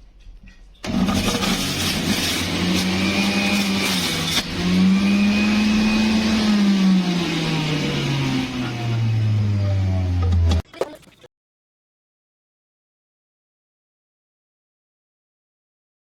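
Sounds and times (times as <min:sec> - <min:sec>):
electric juicer motor whining: 0:00.9 - 0:10.5.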